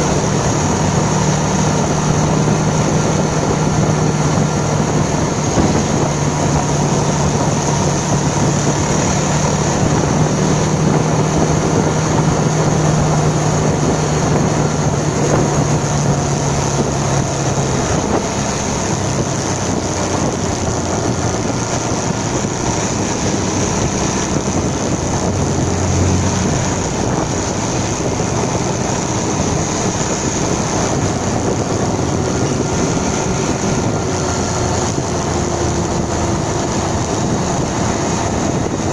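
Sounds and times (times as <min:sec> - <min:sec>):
motorcycle engine running: 0:00.0 - 0:38.9
wind rushing over microphone: 0:00.0 - 0:38.9.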